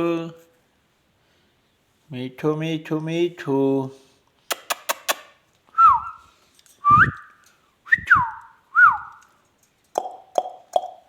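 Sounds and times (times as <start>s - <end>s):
sharp clicks: 4.5s - 5.3s.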